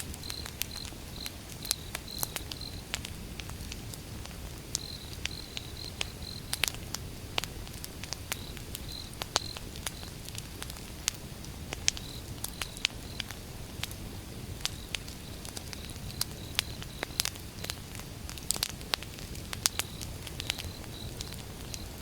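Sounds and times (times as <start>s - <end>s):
fire crackling and popping: 0.0s - 22.0s
low fire rumble: 0.0s - 22.0s.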